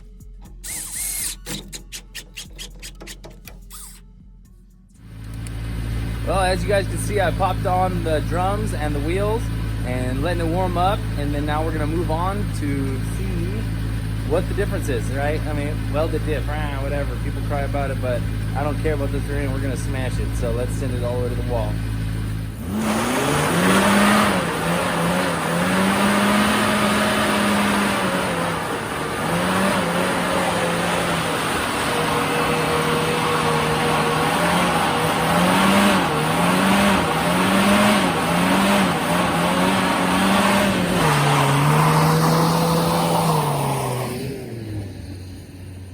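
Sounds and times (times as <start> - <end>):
small engine revving high: 0.6 - 3.1, 6.4 - 45.5
tires spinning: 5.0 - 45.9.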